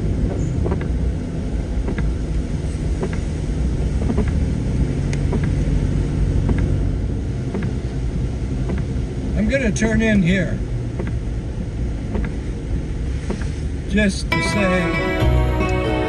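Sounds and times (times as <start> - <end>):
car road and engine rumble: 0.0 - 16.0
faint light ticks: 5.1 - 5.6, 12.1 - 12.4, 13.2 - 13.6.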